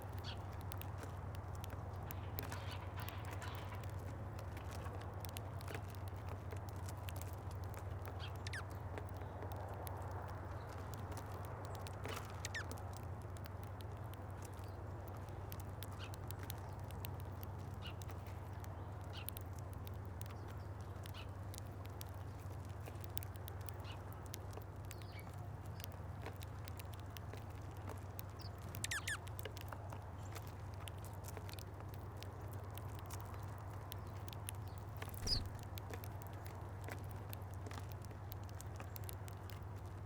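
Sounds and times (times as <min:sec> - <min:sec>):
birds ticking and tapping at feeder: 0:00.0 - 0:40.0
high falling bird chirps: 0:35.2 - 0:35.6.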